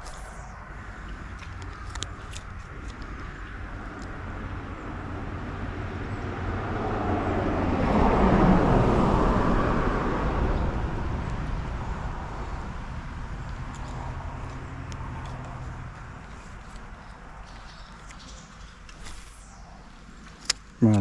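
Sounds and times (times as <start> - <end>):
vehicle passing by: 3.4 - 20.0.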